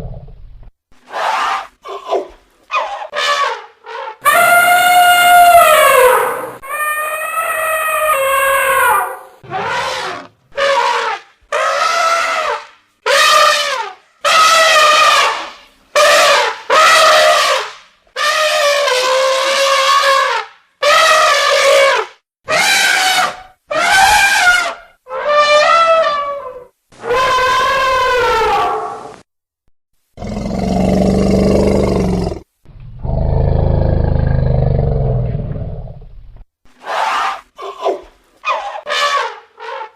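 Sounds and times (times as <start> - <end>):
elephant trumpeting: 1.1 - 29.1, 36.8 - 39.9.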